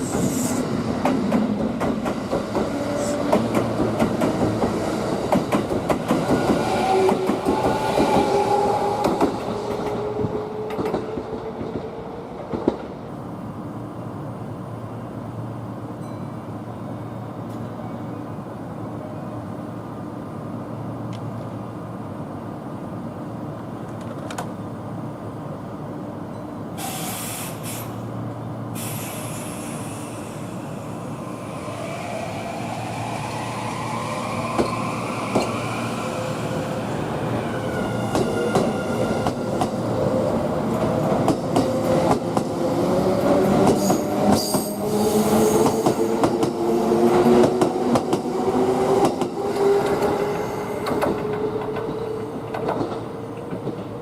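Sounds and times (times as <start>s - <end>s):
train air hiss: 0.0s - 1.0s, 26.8s - 34.3s.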